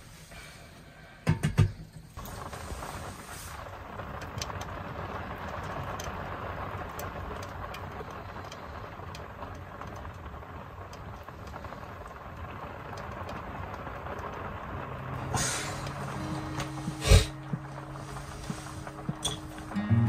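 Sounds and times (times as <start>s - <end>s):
hard rain on wooden roof: 2.1s - 20.0s
soft music tones: 14.7s - 20.0s.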